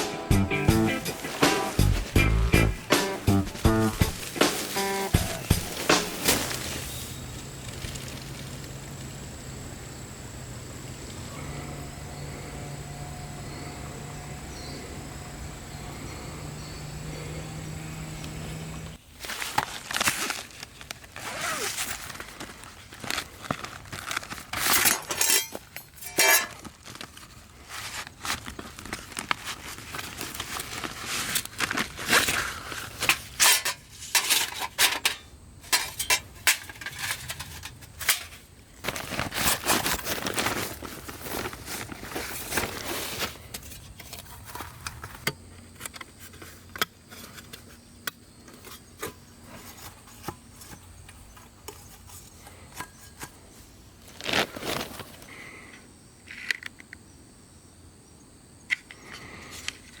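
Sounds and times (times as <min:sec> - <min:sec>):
camp gear clicking and clinking: 0:00.1 - 0:08.7, 0:18.3 - 0:57.0
faint high-pitched insect drone: 0:04.6 - 0:19.0, 0:55.3 - 1:00.0.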